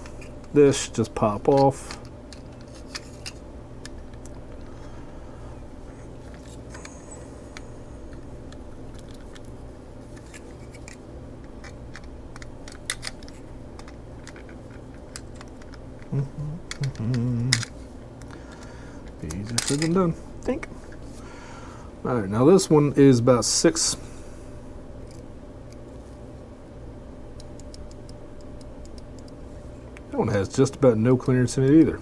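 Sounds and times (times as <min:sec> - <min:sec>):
steady low hum: 0:00.0 - 0:32.0
small clicks and taps of parts: 0:07.5 - 0:09.5, 0:10.1 - 0:16.1, 0:16.7 - 0:20.0, 0:25.0 - 0:25.8, 0:27.4 - 0:30.1.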